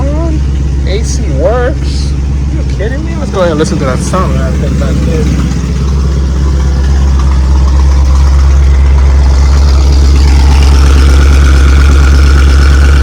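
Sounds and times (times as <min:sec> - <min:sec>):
car engine idling: 0:00.0 - 0:13.0
high whine: 0:00.0 - 0:13.0.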